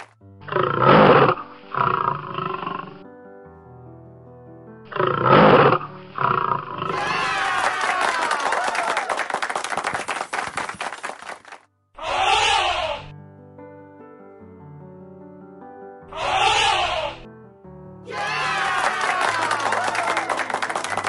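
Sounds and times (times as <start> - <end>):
light cartoon music: 0.0 - 8.0, 15.2 - 21.0
lion roar: 0.4 - 3.0, 4.9 - 7.4.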